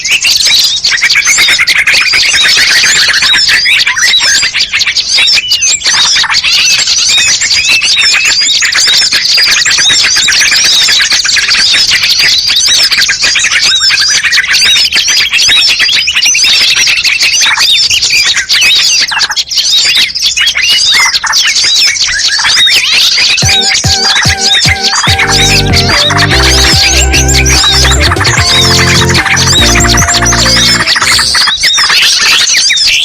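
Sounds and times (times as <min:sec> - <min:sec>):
songbirds chirping: 0:19.4 - 0:32.4
rising and falling bird call: 0:23.4 - 0:31.8.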